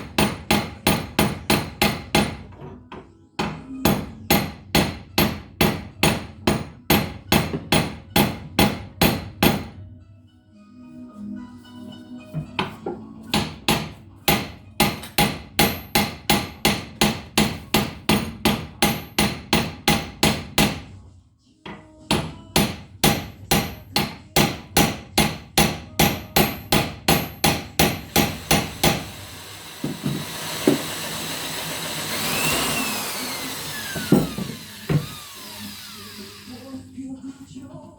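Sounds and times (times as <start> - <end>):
hammer striking metal: 0.0 - 2.6, 3.4 - 9.7, 13.3 - 20.8, 22.1 - 29.2.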